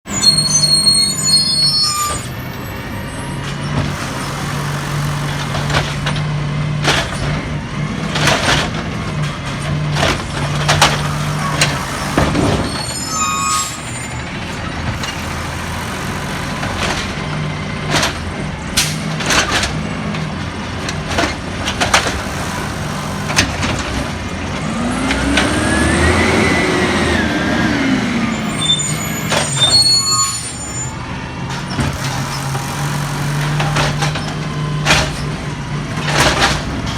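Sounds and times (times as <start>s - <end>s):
garbage truck engine running: 0.1s - 36.9s.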